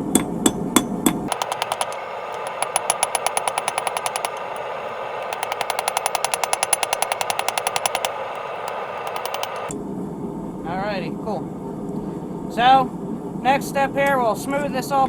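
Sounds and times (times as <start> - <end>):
hammer ringing on anvil: 1.3 - 9.7.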